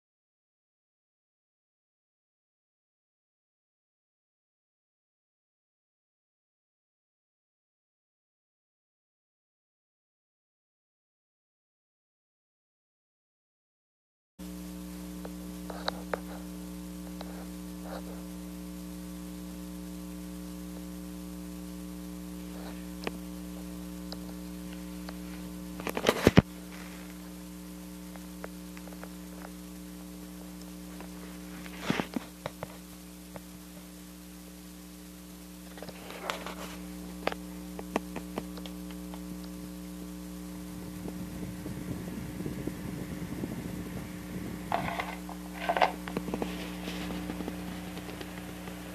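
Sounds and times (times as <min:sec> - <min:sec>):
electric fan motor humming: 0:14.4 - 0:48.9.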